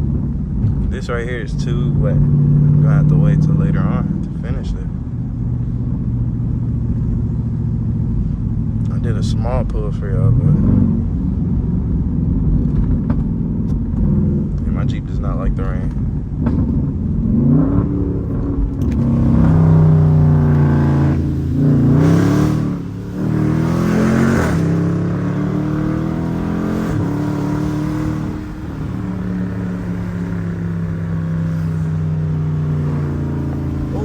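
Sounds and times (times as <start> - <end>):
car engine accelerating through gears: 7.0 - 34.0.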